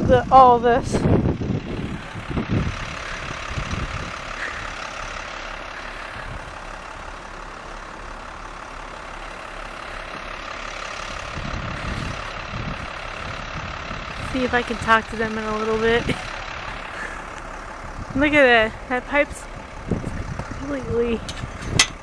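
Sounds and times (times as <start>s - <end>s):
wind buffeting microphone: 0.0s - 5.2s, 6.0s - 6.7s, 11.0s - 22.0s
truck engine running: 0.0s - 22.0s.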